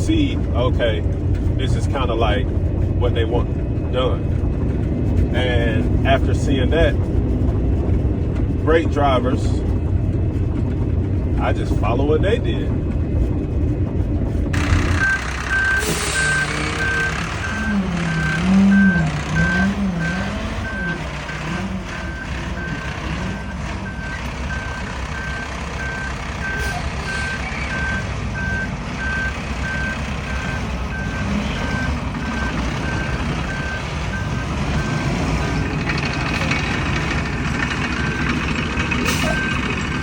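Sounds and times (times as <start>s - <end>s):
diesel truck engine rumble: 0.0s - 40.0s
truck backup alarm beeping: 14.6s - 40.0s.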